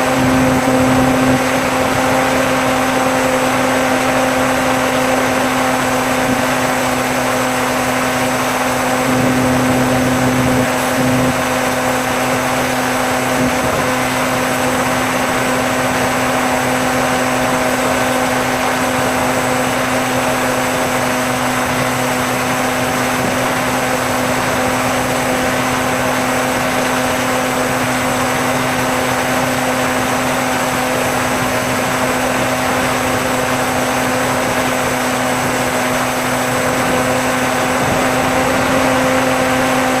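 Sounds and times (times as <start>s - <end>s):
electric motor propeller buzzing: 0.0s - 22.0s, 31.4s - 40.0s.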